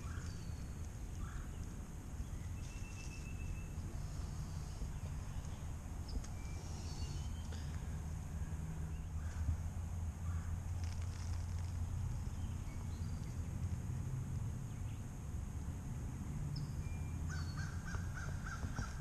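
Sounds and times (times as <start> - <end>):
rustling of leaf litter: 10.7 - 12.6
bird calling: 17.3 - 19.0.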